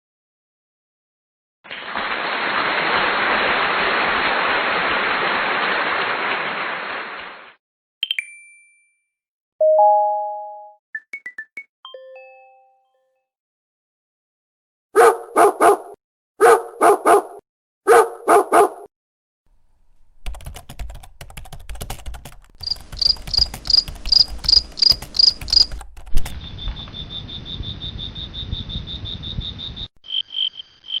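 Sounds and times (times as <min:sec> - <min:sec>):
dog barking: 0:15.0 - 0:18.9
high chirping calls: 0:22.6 - 0:31.0.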